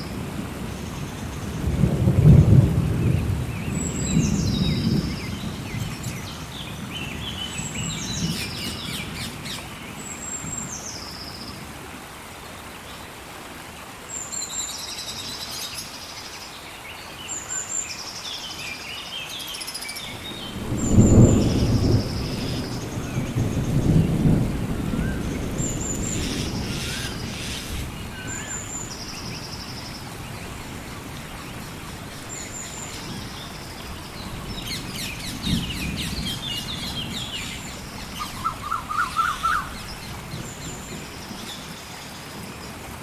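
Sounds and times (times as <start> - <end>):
rain hiss: 0.0 - 43.0
thunder rolling: 1.6 - 6.2, 20.1 - 28.2
bird high descending call: 38.2 - 39.8.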